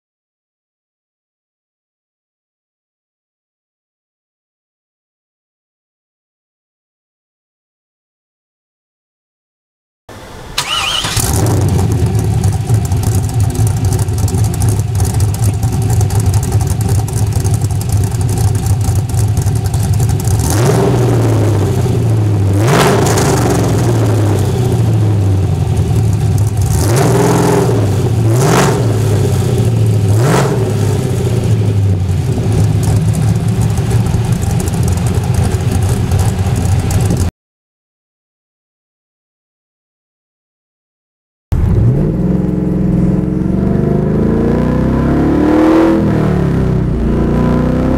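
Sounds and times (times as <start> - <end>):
engine revving: 10.1 - 37.3, 41.6 - 47.9
car engine idling with loping rhythm: 11.8 - 20.6, 24.7 - 26.8, 31.2 - 37.3.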